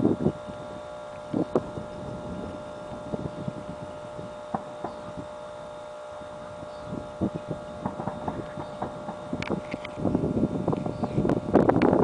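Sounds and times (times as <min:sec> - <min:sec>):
faint steady hum: 0:00.0 - 0:12.0
distant fireworks bursting: 0:07.5 - 0:09.4.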